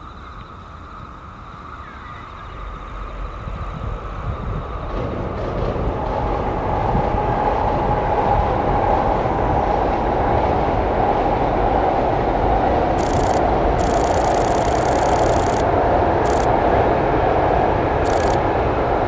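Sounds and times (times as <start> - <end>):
train rolling past: 3.4 - 15.6.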